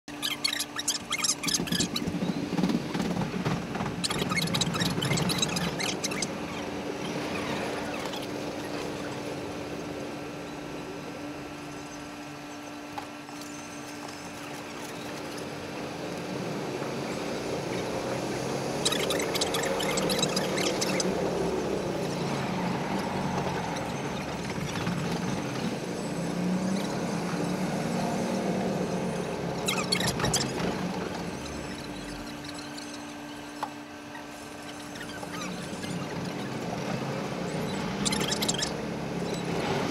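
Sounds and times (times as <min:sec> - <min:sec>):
falling whine: 0:00.1 - 0:39.9
train running along track: 0:00.2 - 0:07.3.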